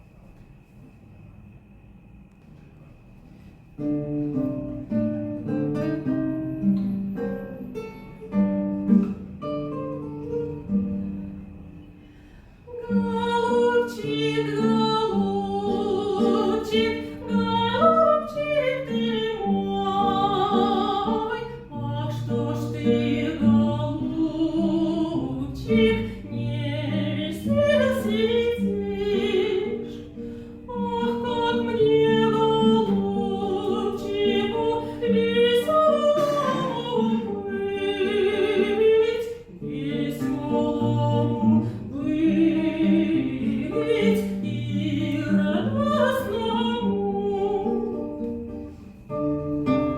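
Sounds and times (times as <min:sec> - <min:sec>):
woman singing with vibrato: 0:12.7 - 0:48.7.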